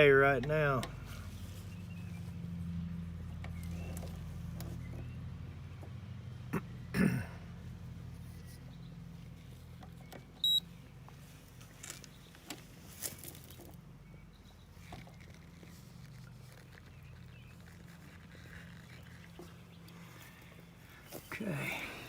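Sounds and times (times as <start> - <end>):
low electrical hum: 0.0 - 22.0
handling rustles: 11.0 - 13.8.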